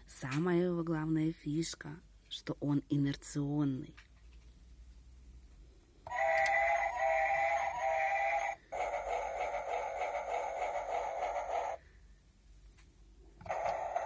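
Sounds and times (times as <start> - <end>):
electronic train running sound: 6.1 - 11.8, 13.4 - 14.0.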